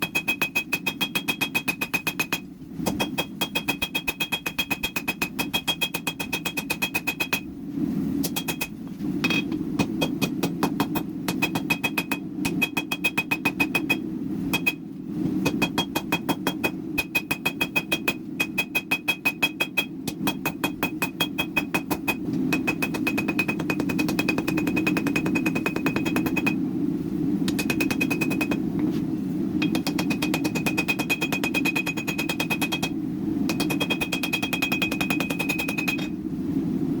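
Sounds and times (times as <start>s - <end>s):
power hammer striking hot steel: 8.3s - 14.8s, 15.4s - 26.6s, 27.5s - 28.6s, 29.6s - 32.9s, 33.5s - 36.1s.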